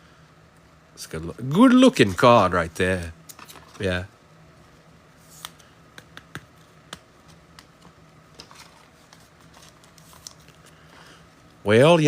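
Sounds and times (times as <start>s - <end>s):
trading cards being shuffled: 5.2s - 10.9s.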